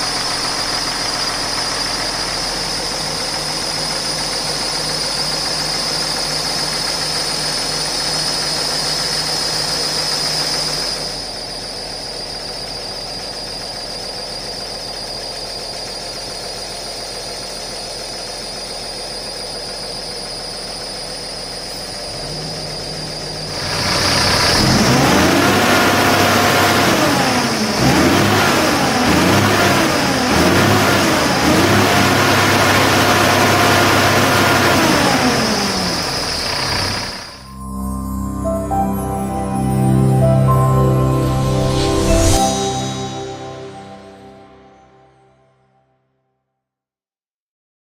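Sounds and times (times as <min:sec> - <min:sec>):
diesel truck engine idling and revving: 0:00.0 - 0:37.5
high steady whine: 0:00.0 - 0:45.3.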